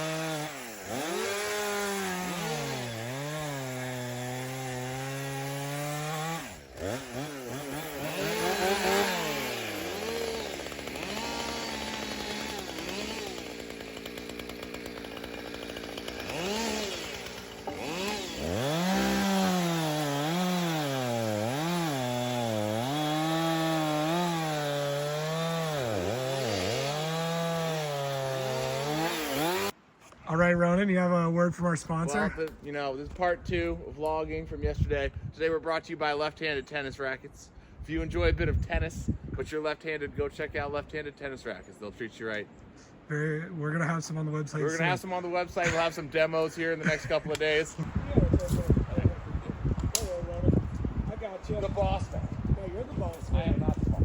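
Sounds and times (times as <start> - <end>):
chainsaw cutting wood: 0.0 - 29.8, 49.8 - 50.2.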